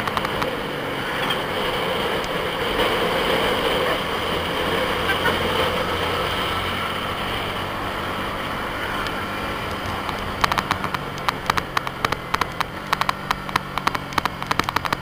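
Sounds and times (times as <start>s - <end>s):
sharp irregular ticks: 0.0s - 0.6s, 9.0s - 15.0s
motorcycle engine running: 0.0s - 15.0s.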